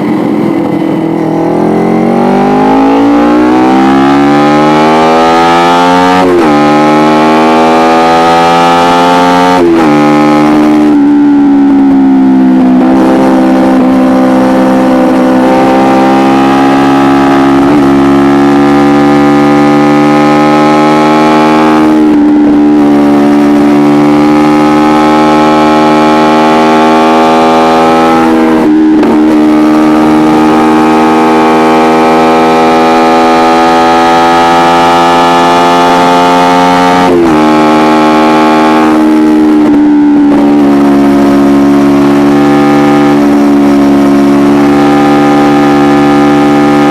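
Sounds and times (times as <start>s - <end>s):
motorcycle engine at high revs: 0.0s - 46.9s.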